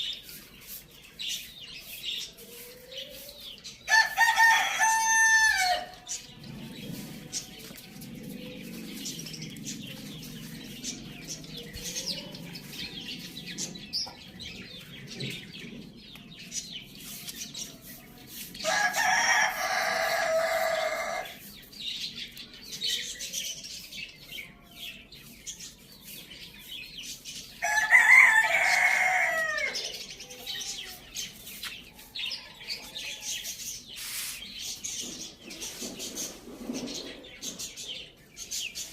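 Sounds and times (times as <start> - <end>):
faint chirps and clucks: 0.0 - 38.9
rooster crowing: 3.9 - 5.9, 18.6 - 21.2, 27.6 - 29.9.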